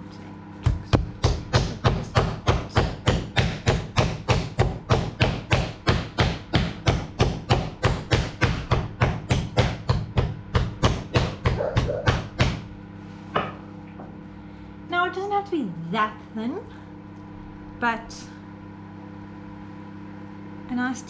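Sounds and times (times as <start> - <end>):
meat mallet thudding: 0.6 - 12.7.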